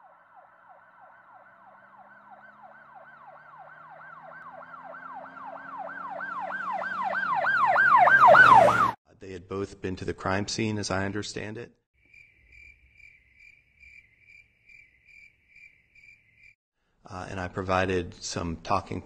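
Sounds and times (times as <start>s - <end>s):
siren yelping: 0.0s - 9.0s.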